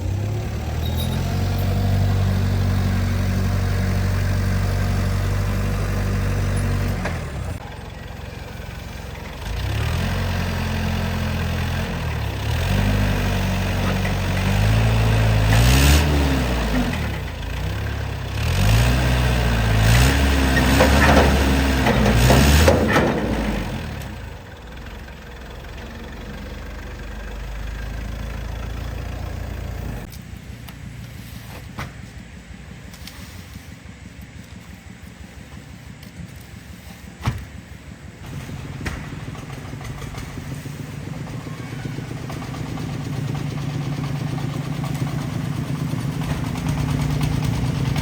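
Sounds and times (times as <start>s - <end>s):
truck engine revving: 0.0s - 30.2s, 33.0s - 48.0s.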